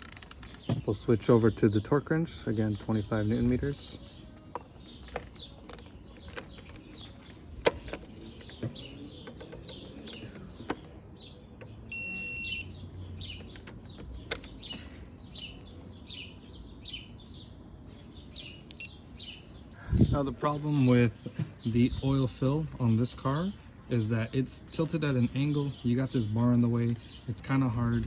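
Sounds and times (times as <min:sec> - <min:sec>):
torque wrench clicks: 0:00.0 - 0:00.7
birds chirping: 0:00.0 - 0:28.0.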